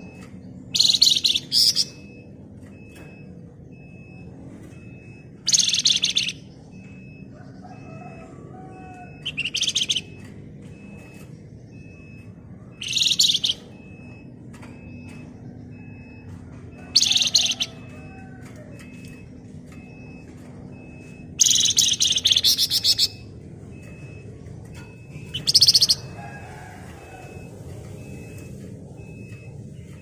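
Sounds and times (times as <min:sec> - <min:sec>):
songbird chattering trills: 0:00.8 - 0:02.0, 0:05.5 - 0:06.4, 0:09.2 - 0:10.2, 0:12.8 - 0:13.7, 0:16.9 - 0:17.9, 0:21.4 - 0:23.2, 0:25.2 - 0:26.2.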